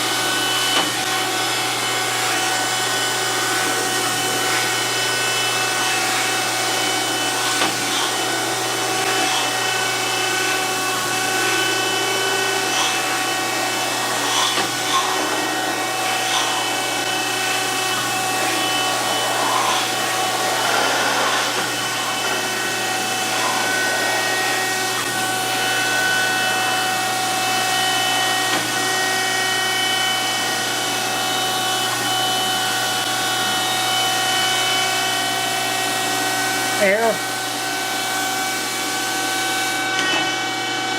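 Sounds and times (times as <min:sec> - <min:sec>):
grinder humming and whining: 0:00.0 - 0:40.9
grinding wheel scratching: 0:03.2 - 0:25.6.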